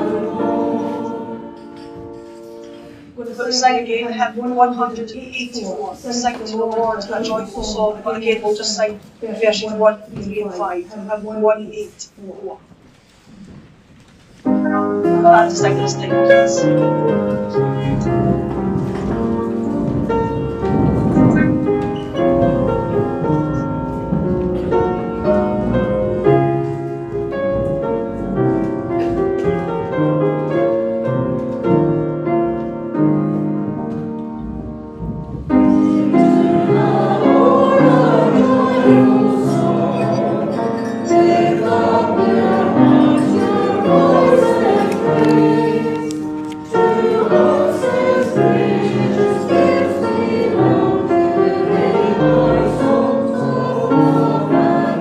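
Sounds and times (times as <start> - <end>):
keyboard playing hymn: 0.0 - 11.8, 14.4 - 55.0
congregation singing a hymn: 0.0 - 11.9, 14.6 - 55.0.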